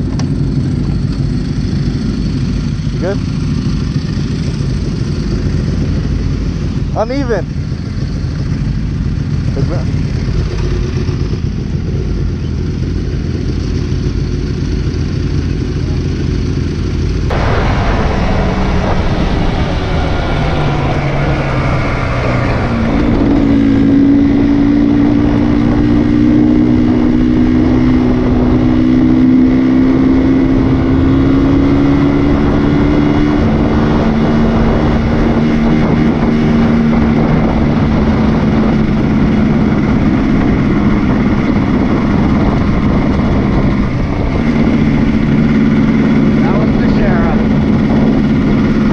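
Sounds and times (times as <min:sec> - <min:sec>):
motorbike engine running: 0:00.0 - 0:48.9
heavy rush of noise: 0:17.0 - 0:27.3, 0:30.5 - 0:48.9.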